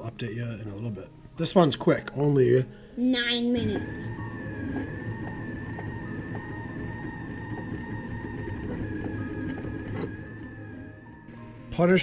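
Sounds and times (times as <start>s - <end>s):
low hum: 3.6s - 11.4s
three d printer whine: 3.6s - 12.0s.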